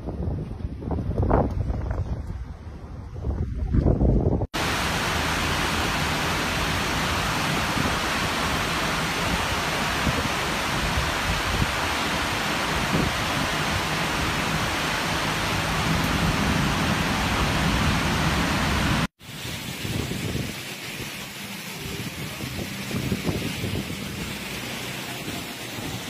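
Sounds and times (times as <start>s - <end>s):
heavy rain pouring: 4.6s - 26.0s.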